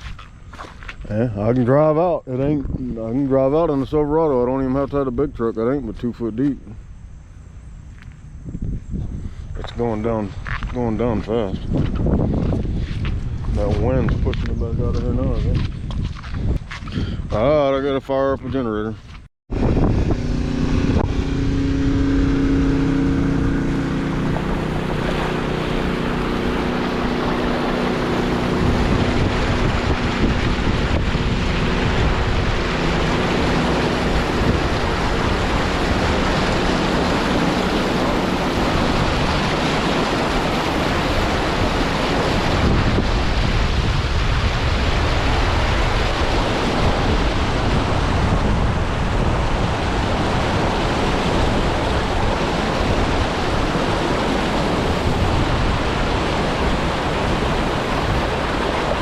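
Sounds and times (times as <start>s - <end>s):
wind buffeting microphone: 1.0s - 6.2s, 8.2s - 59.0s
low engine hum: 19.5s - 59.0s.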